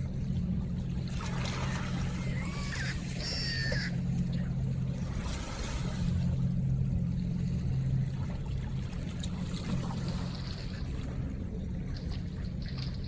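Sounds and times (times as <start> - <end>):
river water trickling and splashing: 0.0 - 13.0
steady low hum: 0.0 - 13.0.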